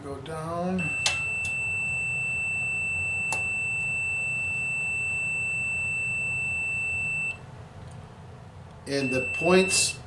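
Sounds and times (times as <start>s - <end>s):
continuity tester beep: 0.8s - 7.4s, 8.9s - 10.0s.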